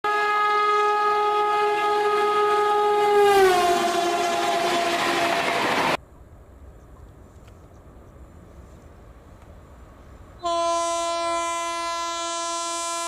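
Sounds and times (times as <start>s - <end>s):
locomotive horn blast: 0.0s - 6.0s, 10.4s - 13.0s
rush of passing train: 1.3s - 12.1s.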